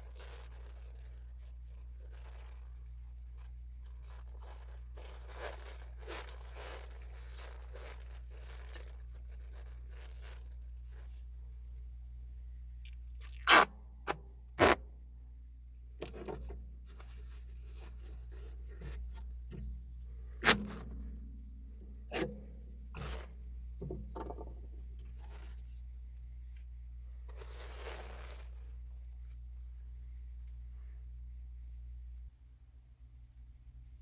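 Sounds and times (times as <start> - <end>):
tape scraping and rustling: 0.0 - 11.3, 12.9 - 13.7, 14.6 - 14.8, 16.0 - 19.7, 27.3 - 29.4
adhesive tape ripping off roll: 13.2 - 13.8, 14.6 - 14.8.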